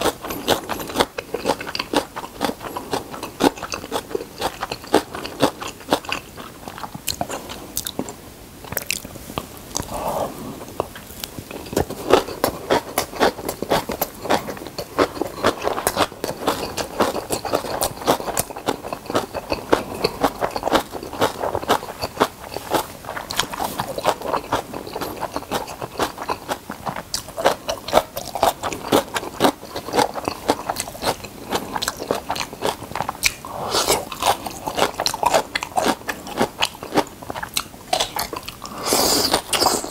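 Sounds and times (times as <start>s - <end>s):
crunchy wet chewing: 0.0s - 39.9s.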